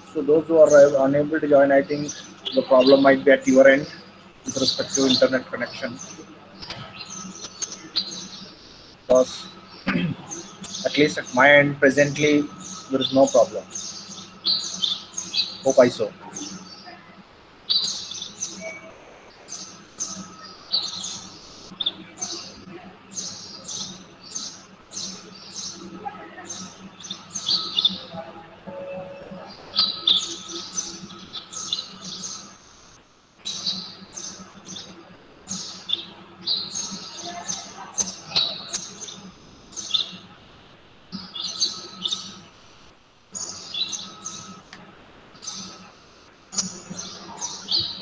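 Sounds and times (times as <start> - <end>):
faint steady hum: 0.0 - 48.0
small birds chirping: 0.0 - 48.0.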